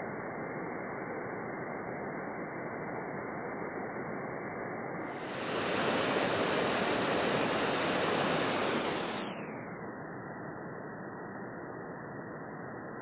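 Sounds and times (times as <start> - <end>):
waterfall rushing: 5.1 - 9.0.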